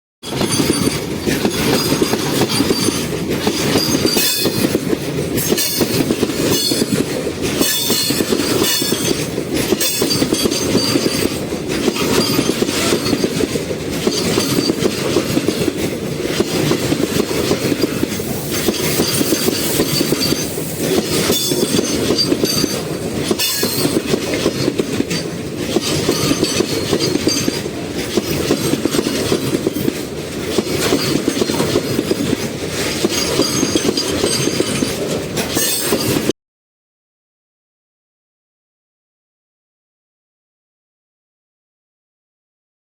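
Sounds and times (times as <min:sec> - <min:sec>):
freight train rumbling: 0:00.2 - 0:36.3
wheels clanking over rail gaps: 0:00.2 - 0:36.3
metallic wheel squeal: 0:00.3 - 0:04.6, 0:09.8 - 0:13.2, 0:18.3 - 0:22.8, 0:25.8 - 0:27.6, 0:33.0 - 0:36.3.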